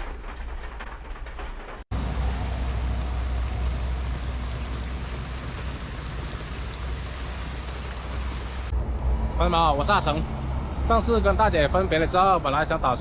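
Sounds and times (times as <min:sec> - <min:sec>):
heavy rain on a van roof: 0:00.0 - 0:08.7
deep rumble: 0:00.0 - 0:12.8.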